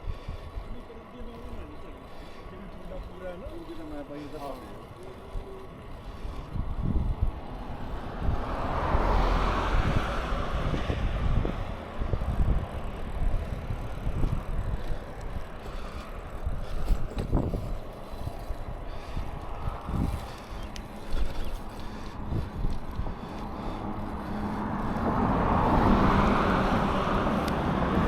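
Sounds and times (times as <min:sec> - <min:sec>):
wind buffeting microphone: 0:00.0 - 0:28.0
loud wind rush: 0:06.1 - 0:15.8, 0:16.4 - 0:28.0.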